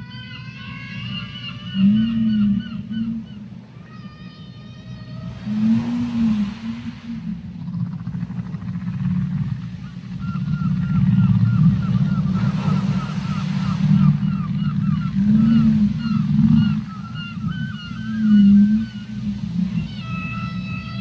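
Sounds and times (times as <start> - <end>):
whale chirping calls: 0.0 - 21.0
low underwater rumble: 4.8 - 17.0.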